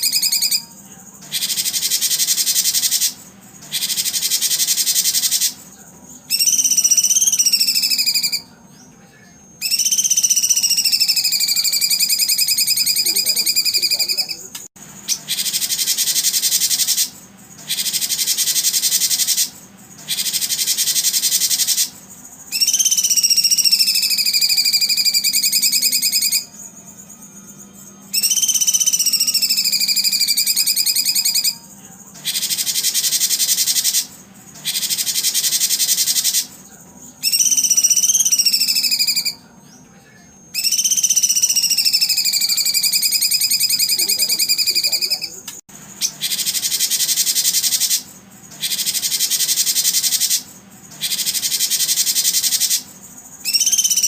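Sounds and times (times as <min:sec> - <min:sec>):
high-pitched buzzing animal calls: 0:00.0 - 0:54.0
whistled tone: 0:06.3 - 0:08.6, 0:09.6 - 0:14.4, 0:22.5 - 0:31.6, 0:37.2 - 0:39.5, 0:40.5 - 0:45.3, 0:53.4 - 0:54.0.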